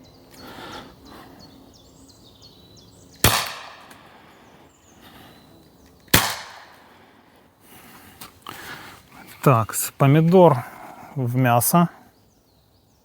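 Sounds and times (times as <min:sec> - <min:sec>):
air pistol shots: 0:03.2 - 0:04.0, 0:06.1 - 0:06.8.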